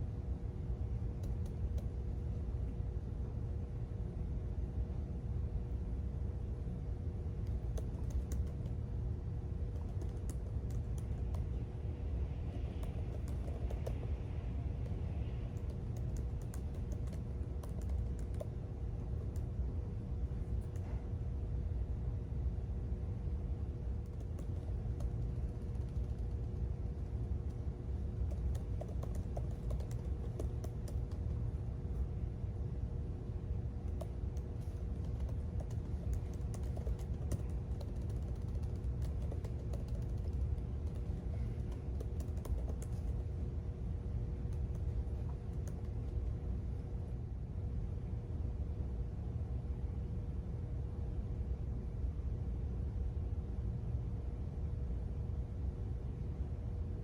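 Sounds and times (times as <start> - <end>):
faint hum: 0.0 - 57.0
low background rumble: 0.0 - 57.0
keyboard keystroke clicks: 28.3 - 31.3, 33.9 - 43.2.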